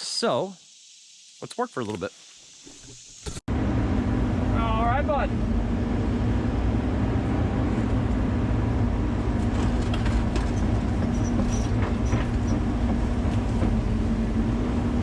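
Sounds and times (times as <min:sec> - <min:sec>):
excavator diesel engine running: 0:03.5 - 0:15.0
high squeaks: 0:10.5 - 0:12.7.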